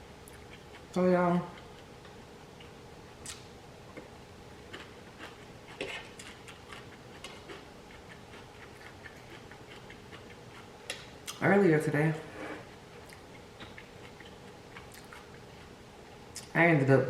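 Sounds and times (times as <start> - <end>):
chewing mouth sounds: 4.7 - 11.4, 13.0 - 15.7.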